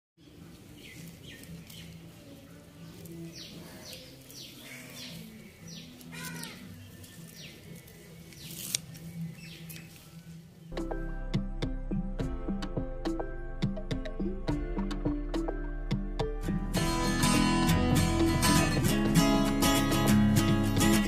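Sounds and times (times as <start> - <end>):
small birds chirping: 0.2 - 11.0
scissors snipping stalks: 7.8 - 9.0.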